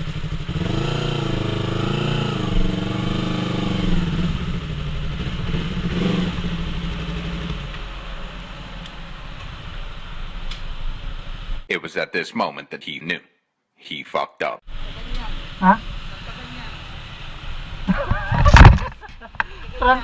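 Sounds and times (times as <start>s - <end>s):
motorcycle engine revving: 0.0s - 10.3s.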